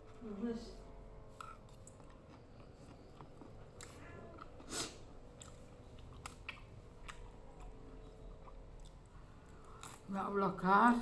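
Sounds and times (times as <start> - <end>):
person chewing: 1.4 - 7.7.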